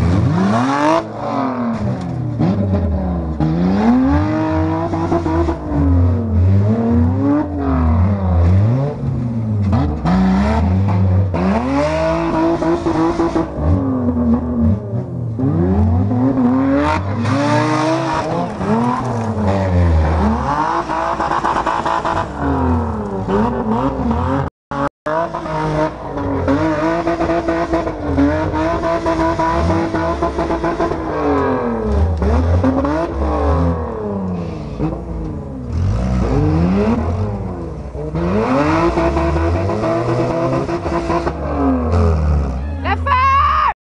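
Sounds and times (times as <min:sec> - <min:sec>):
car engines revving hard: 0:00.0 - 0:43.0.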